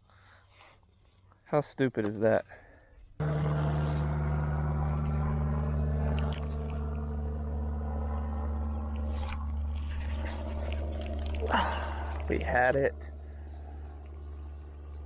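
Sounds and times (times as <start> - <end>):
electric boat motor humming: 3.2 - 15.0.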